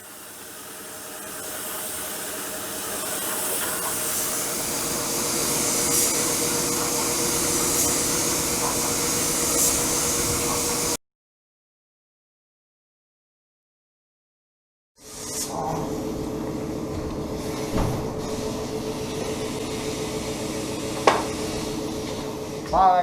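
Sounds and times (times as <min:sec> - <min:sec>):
paint spray gun hissing: 0:00.0 - 0:11.0
shop machinery humming: 0:00.0 - 0:11.0, 0:15.2 - 0:23.0.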